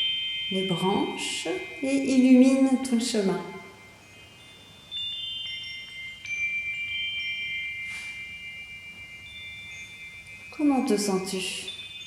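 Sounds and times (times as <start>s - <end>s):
high chimes ringing: 0.0s - 12.0s.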